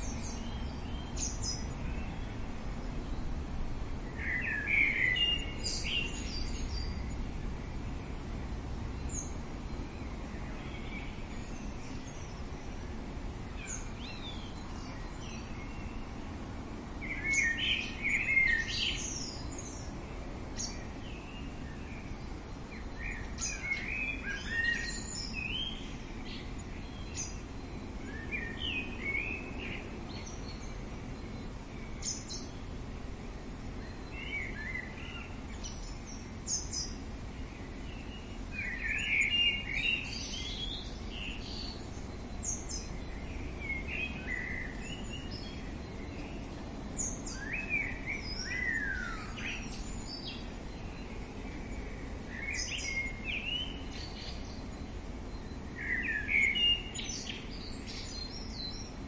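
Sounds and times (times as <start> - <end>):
outdoor background noise: 0.0 - 59.0
birds chirping and singing: 4.0 - 7.3, 17.0 - 20.0, 20.6 - 32.7, 33.7 - 59.0.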